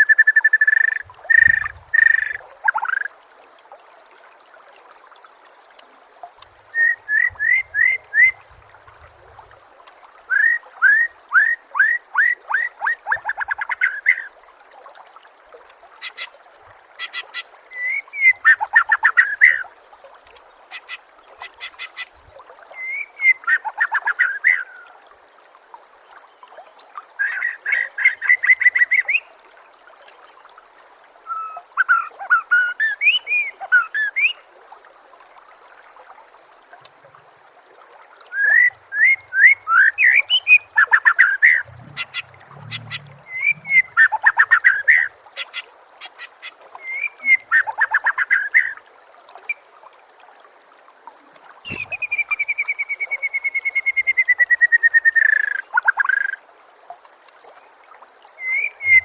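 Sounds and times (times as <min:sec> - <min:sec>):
bird whistled song: 0:06.8 - 0:08.4, 0:22.8 - 0:24.6, 0:38.3 - 0:45.1, 0:46.8 - 0:48.7, 0:51.6 - 0:56.4, 0:58.4 - 0:59.0.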